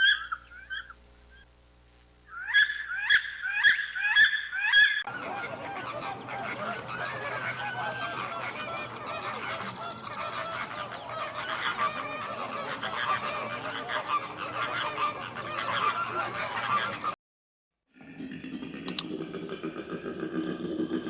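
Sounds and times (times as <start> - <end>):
geese honking: 0.0 - 1.0, 2.3 - 17.2.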